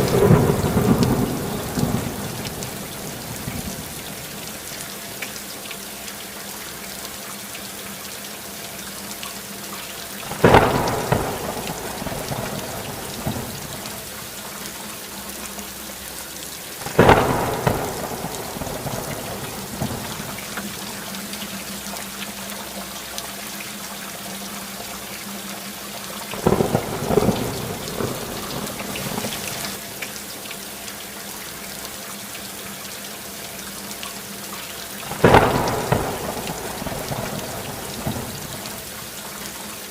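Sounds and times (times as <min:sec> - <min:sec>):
thunder cracking: 0:00.0 - 0:04.4, 0:10.3 - 0:14.1, 0:16.9 - 0:20.8, 0:26.4 - 0:29.8, 0:35.1 - 0:38.8
heavy rainfall: 0:00.0 - 0:39.9.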